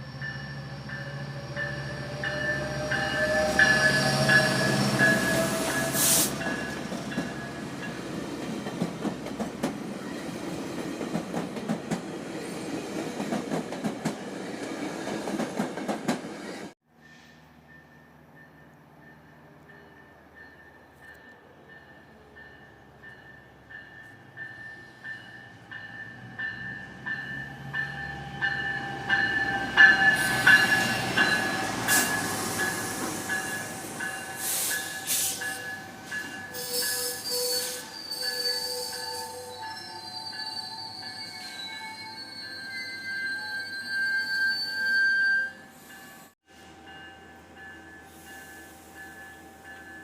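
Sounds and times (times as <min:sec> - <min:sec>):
train wheels and brakes squealing: 0:00.0 - 0:08.0, 0:16.4 - 0:47.0, 0:47.6 - 0:50.0
train approaching: 0:00.0 - 0:50.0.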